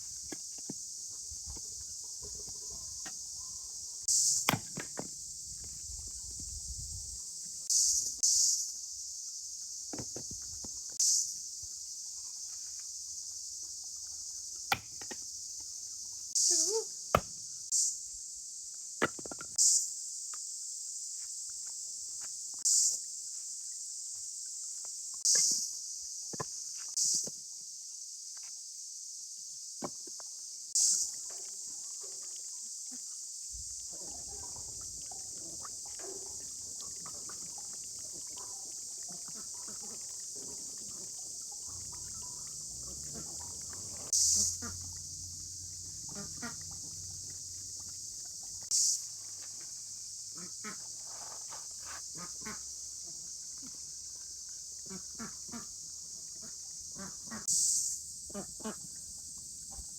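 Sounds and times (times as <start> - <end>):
insect chorus: 0.0 - 59.9.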